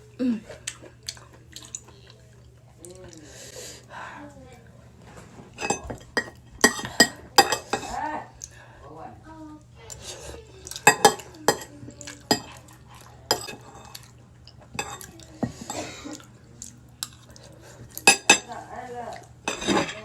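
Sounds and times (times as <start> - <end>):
utensils clinking against bowl: 5.6 - 8.0, 9.9 - 16.3, 17.0 - 20.0.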